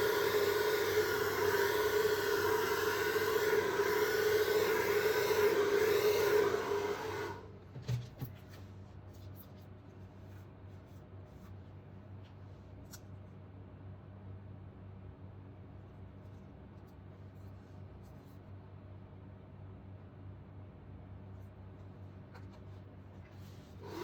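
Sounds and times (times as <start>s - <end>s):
hair dryer blowing: 0.0s - 7.5s.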